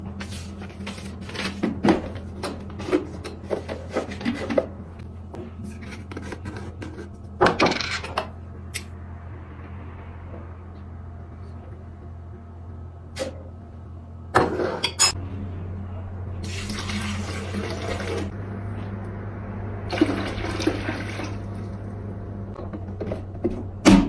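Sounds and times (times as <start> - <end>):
steady low hum: 0.0 - 24.0
objects knocking and tapping: 0.8 - 4.8.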